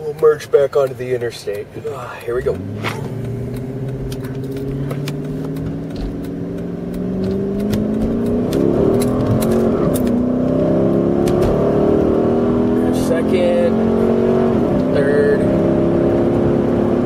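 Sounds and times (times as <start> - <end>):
car engine accelerating: 1.2 - 17.0.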